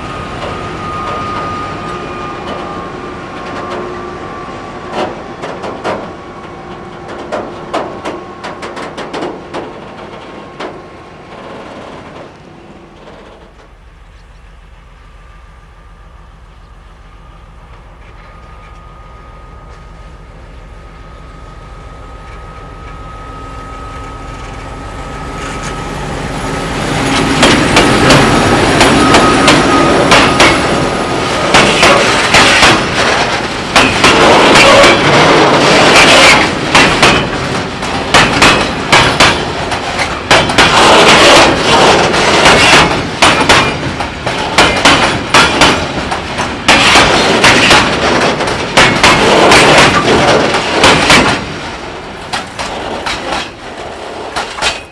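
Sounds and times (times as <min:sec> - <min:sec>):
diesel locomotive passing: 0:00.0 - 0:54.9
wheels clattering over rail joints: 0:04.9 - 0:14.5, 0:25.4 - 0:54.9.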